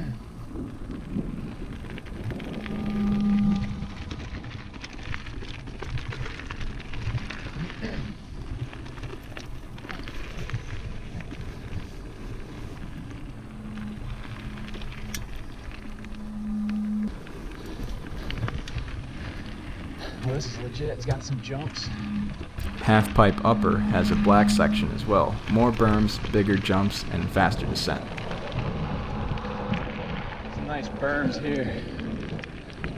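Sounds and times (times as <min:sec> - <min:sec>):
bike tyres rolling over dirt: 0:00.3 - 0:02.8, 0:03.4 - 0:16.2, 0:17.1 - 0:21.6, 0:29.9 - 0:32.9
low hum: 0:00.4 - 0:04.9, 0:11.6 - 0:18.6, 0:21.8 - 0:32.9.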